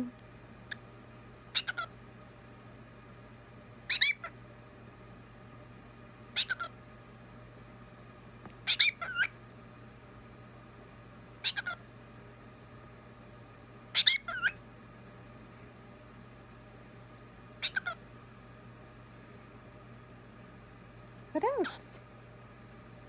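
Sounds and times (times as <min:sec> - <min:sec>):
cockatiel high-pitched calls: 0:01.5 - 0:01.9, 0:03.9 - 0:04.4, 0:06.3 - 0:06.7, 0:08.6 - 0:09.4, 0:11.4 - 0:11.8, 0:13.9 - 0:14.6, 0:17.6 - 0:18.0.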